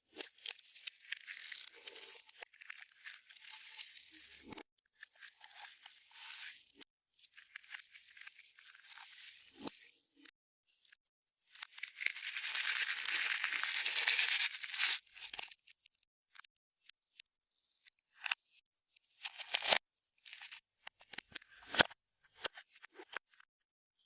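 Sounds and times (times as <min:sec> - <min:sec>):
slime crackling and popping: 0:11.5 - 0:15.5.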